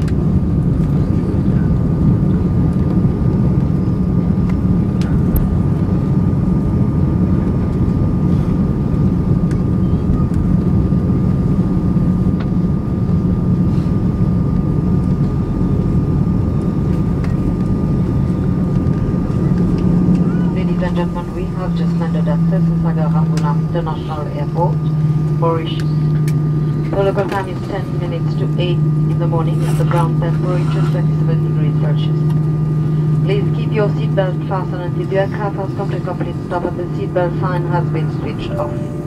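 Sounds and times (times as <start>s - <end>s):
aircraft cabin rumble: 0.0s - 39.0s
thin steady whine: 17.2s - 39.0s.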